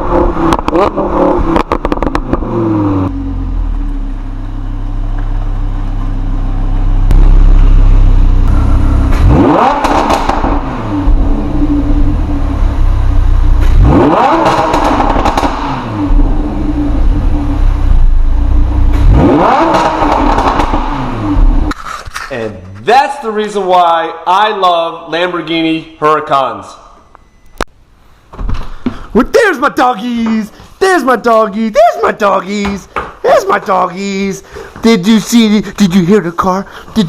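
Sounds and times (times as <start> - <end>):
car engine idling and revving: 0.0 - 22.8.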